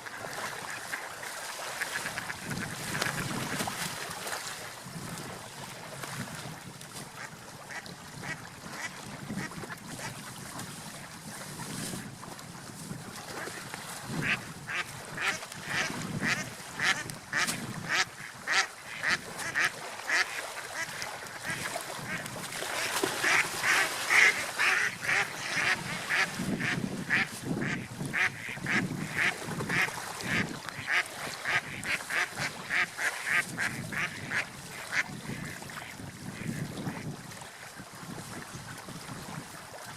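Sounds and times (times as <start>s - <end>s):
ducks quacking: 7.2s - 10.1s, 14.2s - 36.7s.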